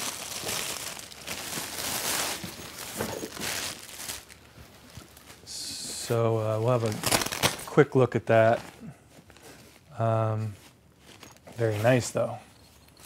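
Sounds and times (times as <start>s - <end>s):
case and packaging rustling: 0.0s - 5.5s, 6.6s - 9.9s, 10.6s - 13.0s.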